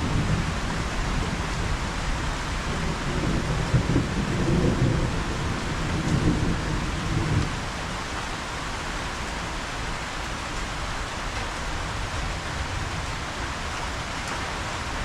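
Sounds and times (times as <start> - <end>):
rolling thunder: 0.0 - 7.6
steady rain: 0.0 - 15.0.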